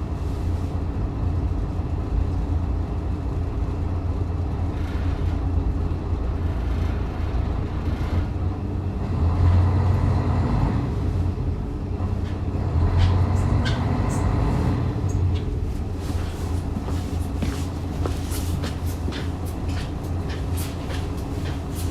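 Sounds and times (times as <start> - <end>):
railcar engine drone: 0.0 - 21.9
wheel and rail noise: 3.5 - 21.9.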